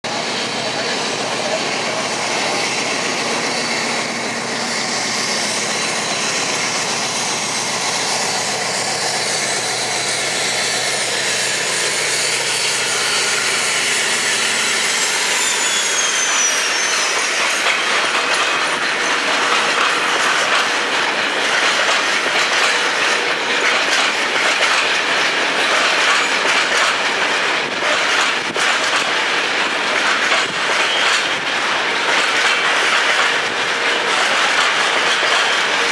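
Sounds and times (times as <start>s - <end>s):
diesel locomotive engine: 0.0s - 35.9s
wheel squeal: 2.3s - 20.1s, 30.4s - 31.4s
wagon wheels clacking over rail joints: 17.6s - 35.9s.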